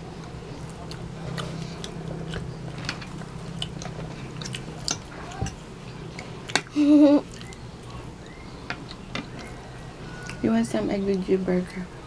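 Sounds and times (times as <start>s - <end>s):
child chewing: 0.0s - 10.5s
wet clicking mouth noises: 7.3s - 8.0s.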